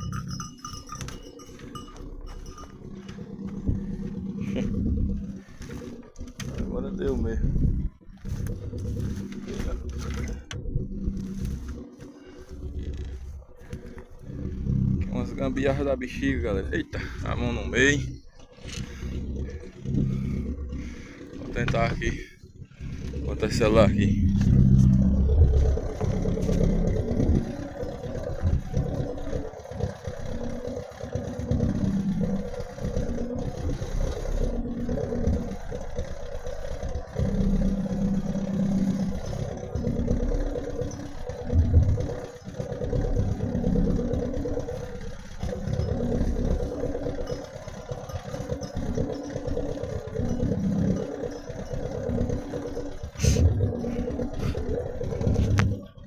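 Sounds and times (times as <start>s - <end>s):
clattering and rattling: 0.0s - 56.0s
small vehicle engine running: 0.0s - 56.0s.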